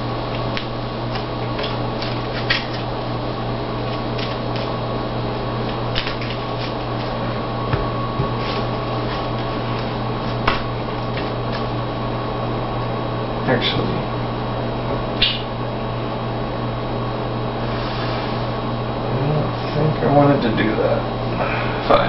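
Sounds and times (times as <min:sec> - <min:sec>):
background hum: 0:00.0 - 0:22.0.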